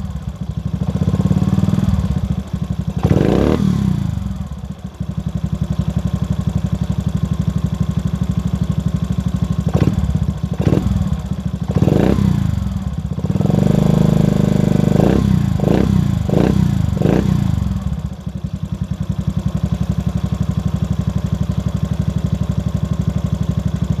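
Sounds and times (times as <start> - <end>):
motorcycle engine idling and revving: 0.0 - 24.0.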